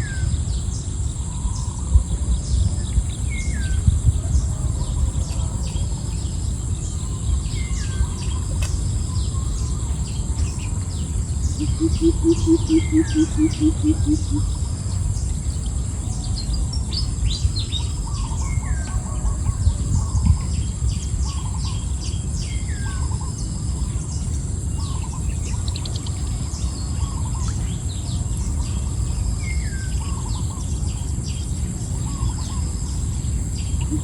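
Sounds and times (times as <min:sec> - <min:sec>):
birds chirping and calling: 0:00.0 - 0:34.0
high insect drone: 0:00.0 - 0:34.0
low rumble: 0:00.0 - 0:34.0.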